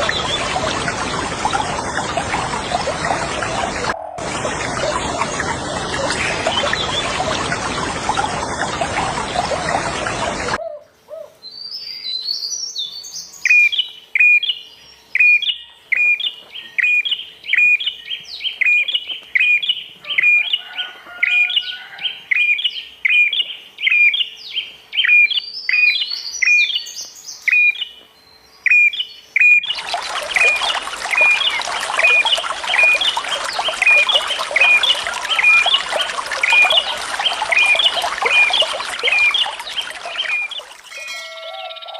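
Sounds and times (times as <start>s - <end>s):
running water rushing: 0.0s - 10.6s, 29.6s - 41.1s.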